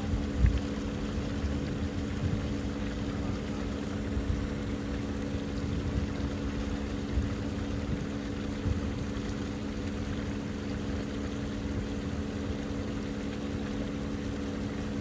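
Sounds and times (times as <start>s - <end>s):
wind rumbling on microphone: 0.0s - 3.5s
steady low engine drone: 0.0s - 15.0s.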